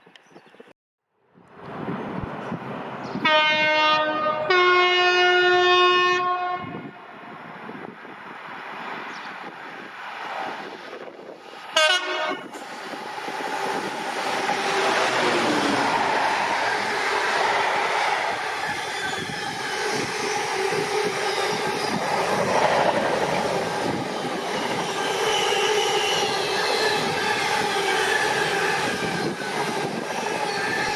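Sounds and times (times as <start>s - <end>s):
train passing: 1.5s - 30.9s
train horn blast: 3.2s - 7.0s, 11.7s - 12.6s.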